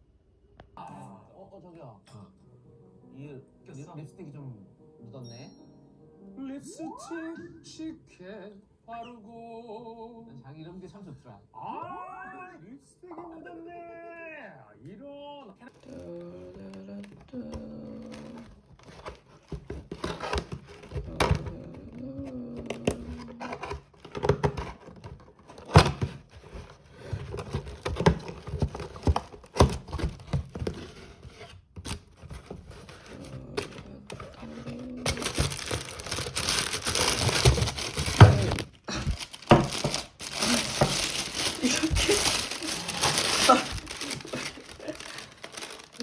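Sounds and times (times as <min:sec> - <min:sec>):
wrapping crinkling and rustling: 0:15.6 - 0:46.0
knocks and taps on packaging: 0:22.7 - 0:30.9, 0:35.1 - 0:42.4.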